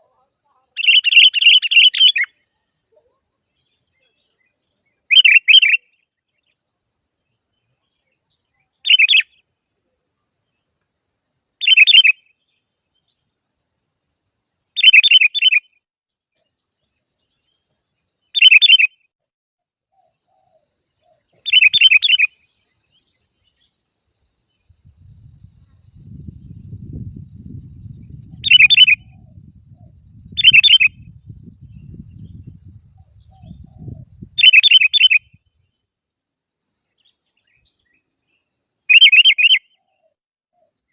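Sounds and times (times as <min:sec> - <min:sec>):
bulbul calling: 0:00.7 - 0:02.4, 0:05.1 - 0:06.0, 0:08.8 - 0:09.4, 0:11.6 - 0:12.2, 0:14.8 - 0:15.7, 0:18.4 - 0:19.0, 0:20.0 - 0:22.4, 0:27.9 - 0:31.1, 0:31.7 - 0:35.4, 0:38.9 - 0:40.7.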